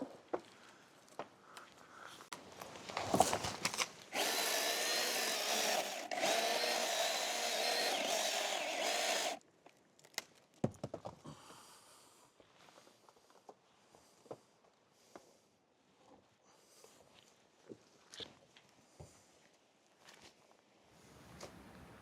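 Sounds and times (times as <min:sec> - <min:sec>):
power tool motor running: 0:04.1 - 0:09.4.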